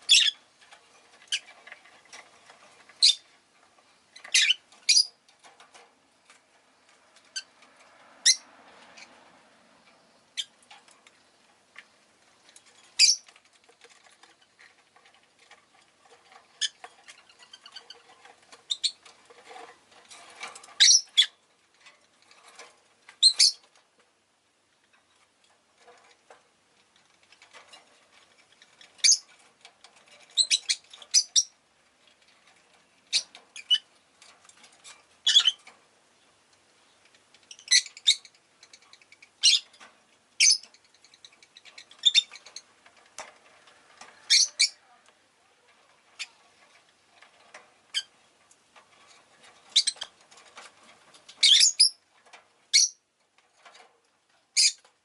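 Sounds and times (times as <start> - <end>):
lovebirds chirping and squawking: 0.0 - 0.5, 1.1 - 3.4, 4.1 - 5.8, 7.2 - 7.6, 8.2 - 9.2, 10.3 - 11.0, 12.6 - 14.3, 16.1 - 19.6, 20.2 - 21.4, 23.2 - 23.8, 27.5 - 29.5, 30.1 - 31.6, 33.0 - 34.0, 34.7 - 35.8, 36.8 - 43.3, 43.9 - 45.0, 45.8 - 46.7, 47.8 - 48.2, 49.1 - 52.0, 52.7 - 53.0, 54.5 - 54.9.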